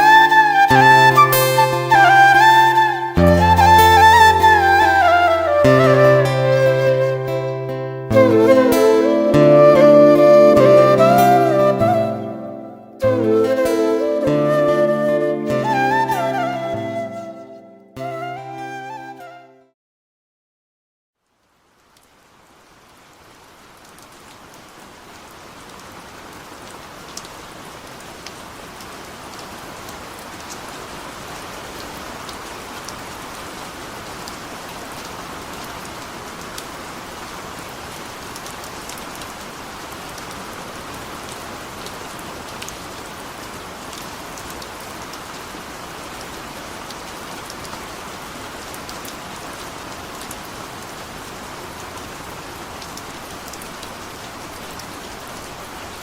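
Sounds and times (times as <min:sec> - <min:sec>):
heavy rain falling: 0:00.0 - 0:07.4, 0:08.1 - 0:17.2, 0:21.2 - 0:56.0
raindrops ticking on a surface: 0:21.2 - 0:56.0.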